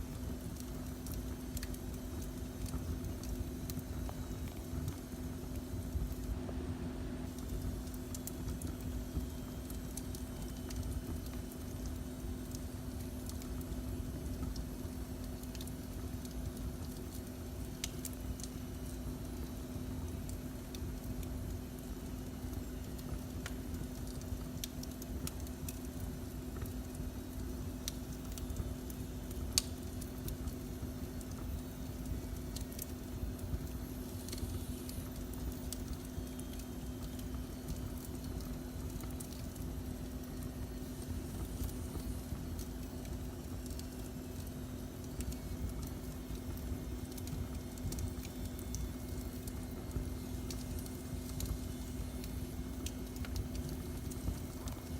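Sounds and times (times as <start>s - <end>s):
wood fire rumbling: 0.0s - 6.6s, 7.2s - 54.9s
constant low hum: 0.0s - 54.9s
fire crackles and pops: 0.0s - 54.9s.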